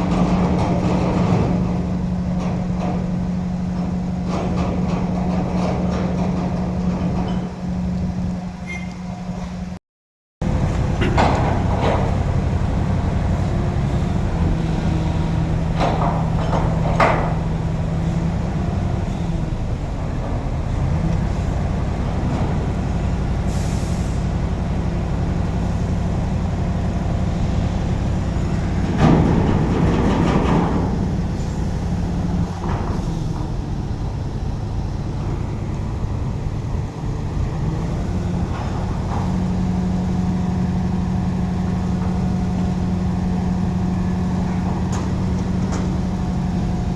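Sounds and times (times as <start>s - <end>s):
truck diesel engine running: 10.4s - 46.9s.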